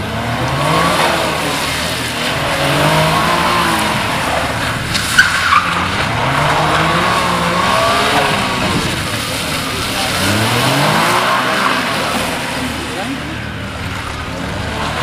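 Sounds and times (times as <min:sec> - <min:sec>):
car engine revving: 0:00.0 - 0:15.0
tyres hissing on wet tarmac: 0:00.2 - 0:15.0
tyre squeal: 0:01.0 - 0:12.4.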